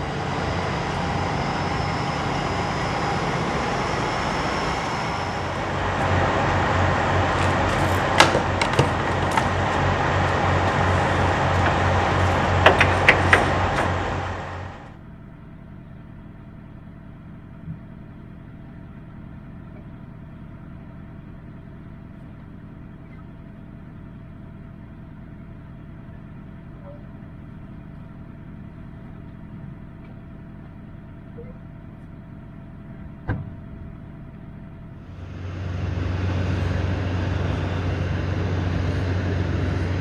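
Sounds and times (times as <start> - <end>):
road noise: 0.0 - 15.0, 33.8 - 40.0
truck engine drone: 0.0 - 40.0.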